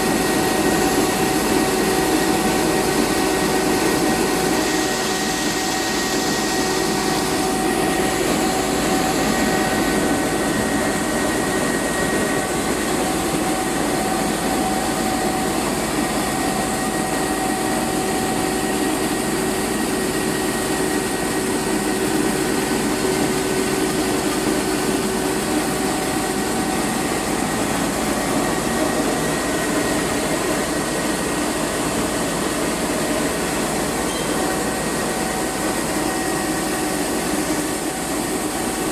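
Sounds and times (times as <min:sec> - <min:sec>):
mill machinery running: 0:00.0 - 0:38.9
machine whining tones: 0:33.9 - 0:37.8.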